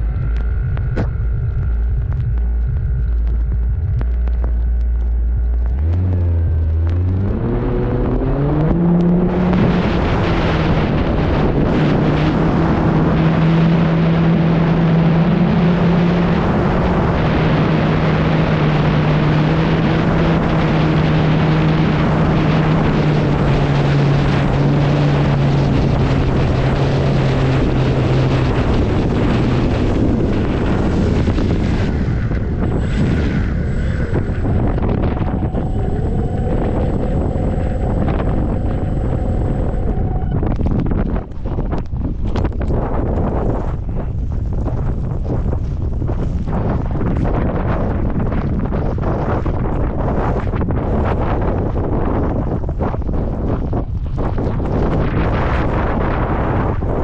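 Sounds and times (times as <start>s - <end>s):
electric motor and propeller: 0.0s - 57.0s
rush of wind: 0.0s - 57.0s.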